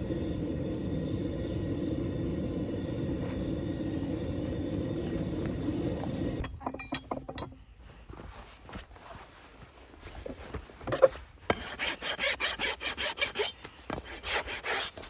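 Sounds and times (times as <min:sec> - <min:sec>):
steady low rumble: 0:00.0 - 0:06.9
light metallic clinks of tools: 0:06.4 - 0:07.8.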